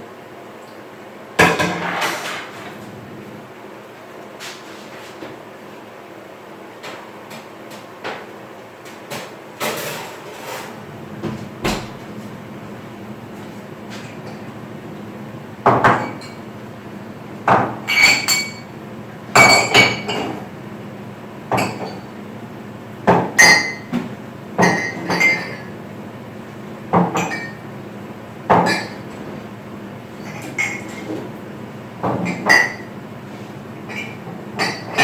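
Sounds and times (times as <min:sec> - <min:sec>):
dishes and utensils clinking: 0:17.9 - 0:18.7, 0:24.6 - 0:25.7.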